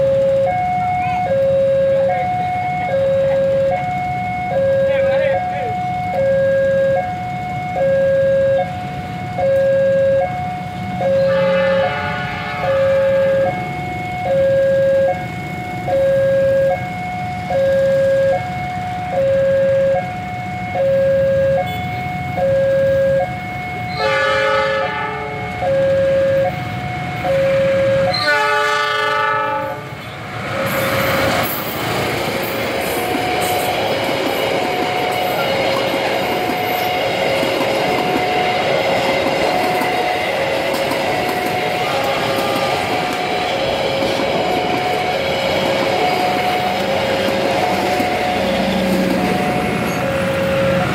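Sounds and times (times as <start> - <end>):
level crossing two-tone alarm: 0.0 - 29.0
train rushing past on rails: 0.0 - 50.9
locomotive horn: 9.5 - 15.2, 20.8 - 30.2, 41.4 - 43.2.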